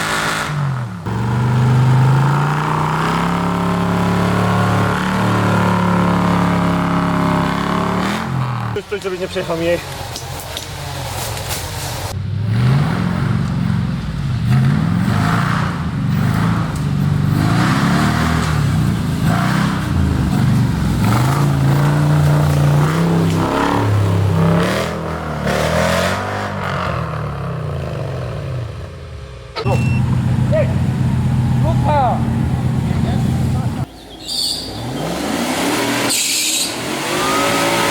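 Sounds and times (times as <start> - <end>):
off-road vehicle engine revving: 0.0 - 11.0, 11.9 - 37.9.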